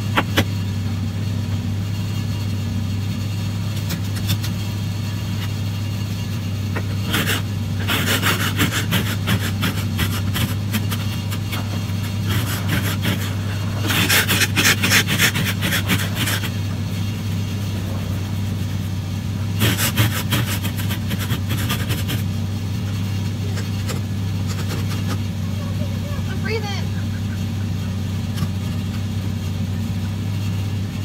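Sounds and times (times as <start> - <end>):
car engine idling: 0.0 - 31.0
ice scraper scraping glass: 6.9 - 16.7, 19.5 - 22.3.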